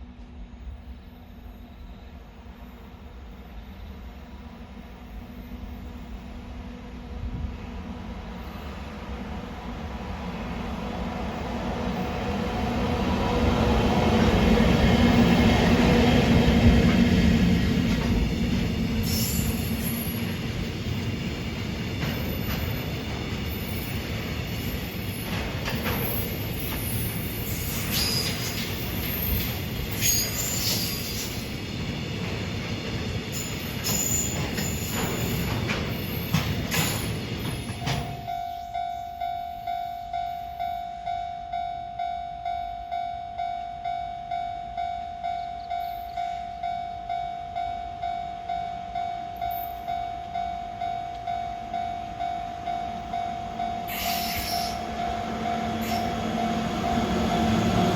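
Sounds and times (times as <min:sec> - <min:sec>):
freight train rumble: 0:00.0 - 0:57.9
high-pitched wheel squeals: 0:19.0 - 0:20.2, 0:26.0 - 0:31.4, 0:53.7 - 0:56.5
train wheels knocking: 0:20.6 - 0:27.0, 0:31.8 - 0:38.2
train motor hum: 0:50.2 - 0:57.9.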